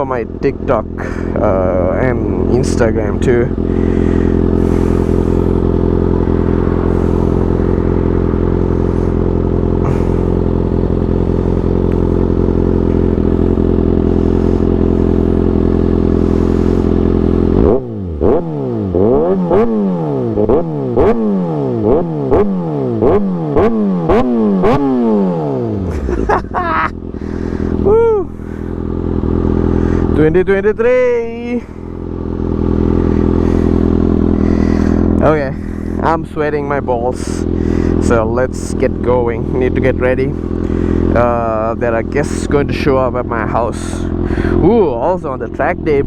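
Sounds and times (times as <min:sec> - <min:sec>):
motorcycle engine idling: 0:00.0 - 0:46.0
sharp engine revs: 0:03.5 - 0:10.8, 0:12.8 - 0:27.8.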